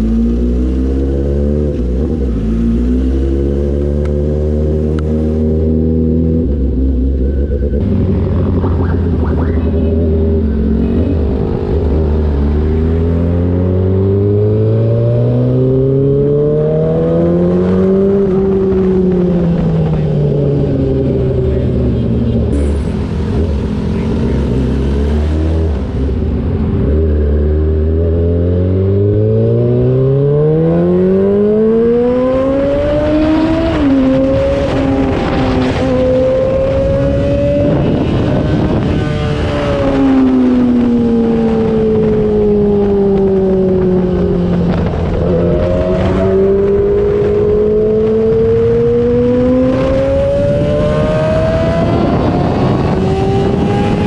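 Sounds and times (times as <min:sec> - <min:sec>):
motorcycle engine revving: 0:00.0 - 0:54.0
wind rush: 0:31.0 - 0:54.0.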